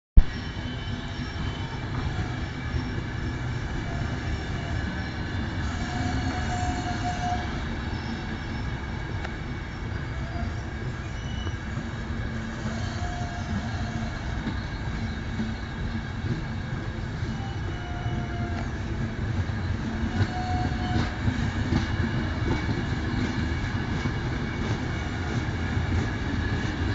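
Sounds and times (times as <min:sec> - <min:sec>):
train wheels rumbling on track: 0:00.2 - 0:26.9
faint wheel squeals: 0:00.3 - 0:19.0.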